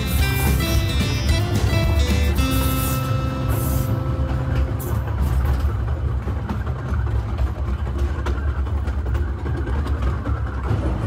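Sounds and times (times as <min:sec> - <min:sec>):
steam train rumbling along track: 0:00.0 - 0:11.0
wheels clicking on rails: 0:00.0 - 0:11.0.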